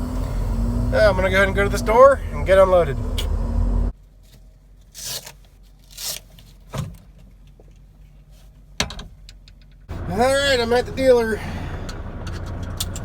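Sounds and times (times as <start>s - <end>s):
truck engine rumble: 0.0s - 4.0s, 9.9s - 13.0s.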